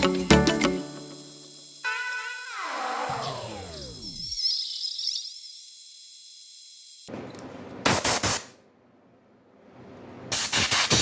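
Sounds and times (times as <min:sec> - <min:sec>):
compressed air hissing blast: 0:00.8 - 0:04.2.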